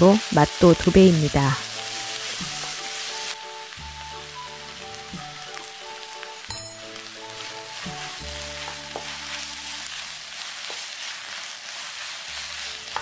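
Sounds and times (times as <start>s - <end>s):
food sizzling in oil: 0.0s - 13.0s
wooden spatula stirring: 1.6s - 3.4s, 7.0s - 13.0s.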